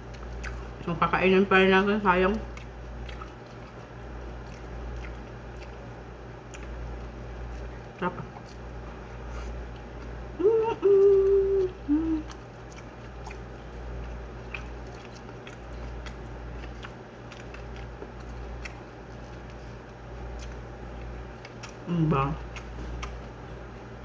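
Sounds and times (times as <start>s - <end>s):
person chewing rice: 0.0s - 0.8s, 2.4s - 24.0s
steady low hum: 0.0s - 24.0s
person humming mmm: 10.3s - 12.4s.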